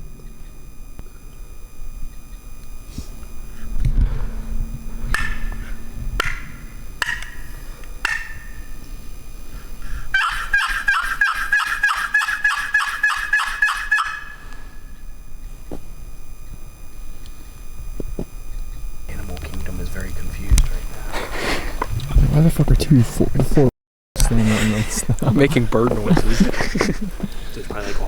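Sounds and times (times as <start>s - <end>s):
low rumble: 0.0s - 10.0s
bird-like calls: 10.1s - 14.5s.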